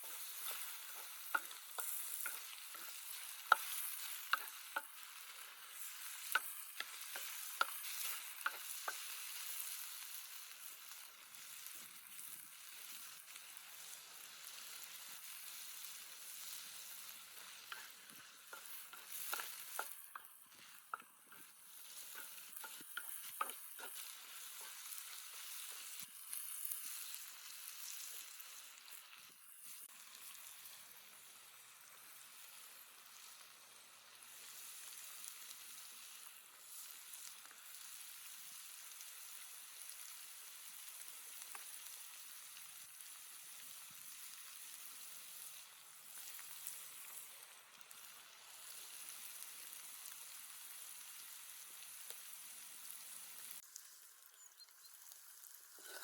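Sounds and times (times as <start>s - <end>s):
food sizzling in a pan: 0.0s - 56.0s
utensil scraping a pan: 16.7s - 26.0s, 55.7s - 56.0s.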